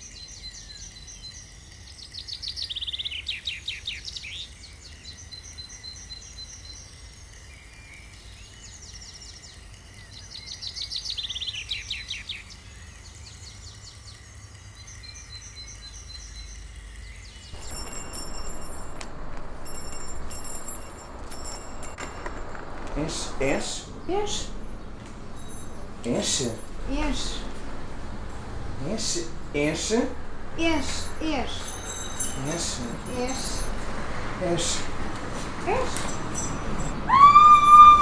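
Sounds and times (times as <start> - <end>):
small birds chirping: 0.0 - 37.1
bird rapid trills: 0.1 - 28.4
low steady rumble: 17.6 - 35.3.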